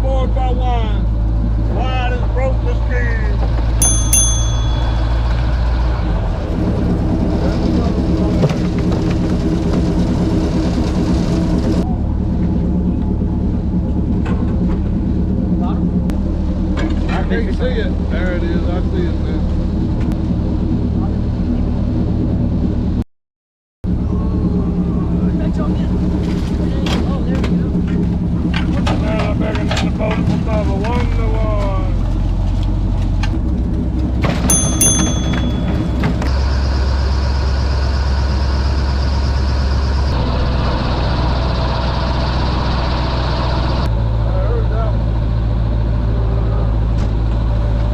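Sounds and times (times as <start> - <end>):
sharp metallic clanks: 3.8 - 5.4, 34.5 - 36.4.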